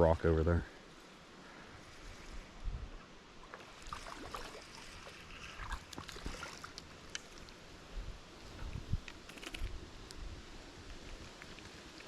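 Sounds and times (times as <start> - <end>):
river water splashing: 3.0 - 7.8.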